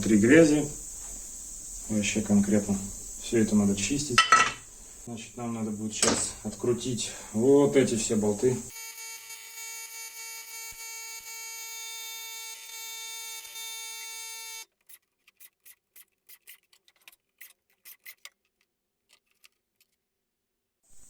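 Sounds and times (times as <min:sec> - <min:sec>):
power tool motor whine: 0:08.6 - 0:14.6.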